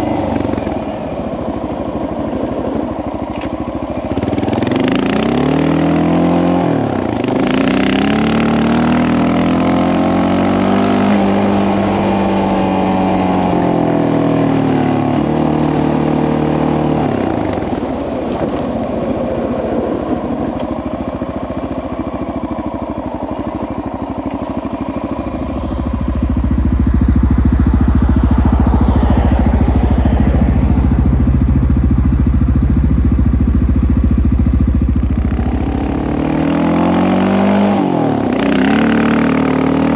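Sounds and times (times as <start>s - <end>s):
motorcycle engine revving: 4.1s - 18.5s, 20.0s - 39.9s
heavy low rumble: 25.2s - 36.5s.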